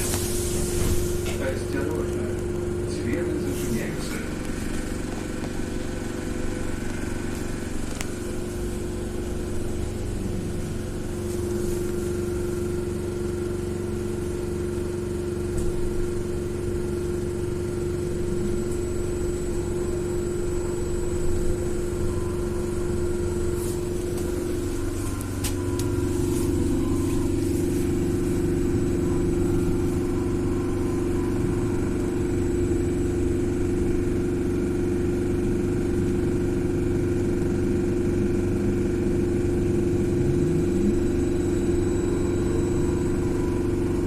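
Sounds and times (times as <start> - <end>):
electric motor whine: 39.4 - 44.0.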